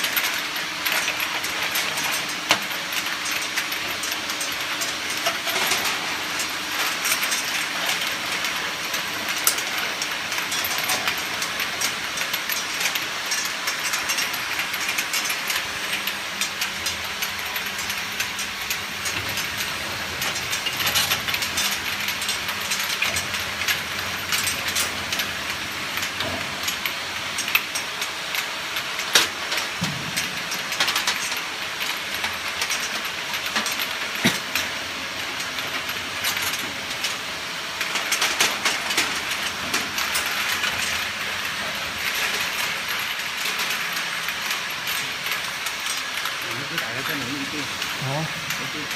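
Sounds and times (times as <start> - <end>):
washing machine hissing: 33.9 - 48.9.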